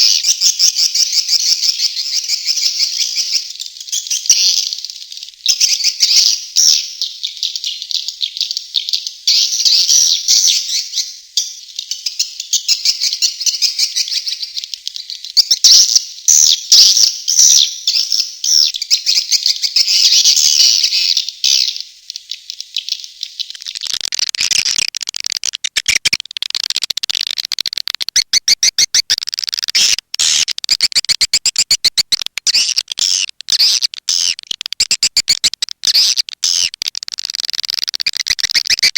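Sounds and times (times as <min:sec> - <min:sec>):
swiftlets twittering: 0:23.3 - 0:38.9
rapid sharp clicks: 0:23.5 - 0:38.9.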